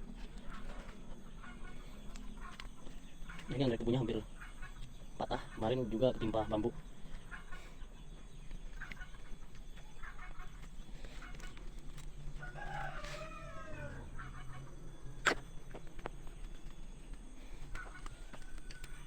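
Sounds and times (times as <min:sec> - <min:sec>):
chickens clucking: 0:00.0 - 0:19.0
rooster crowing: 0:12.2 - 0:14.8, 0:17.8 - 0:19.0.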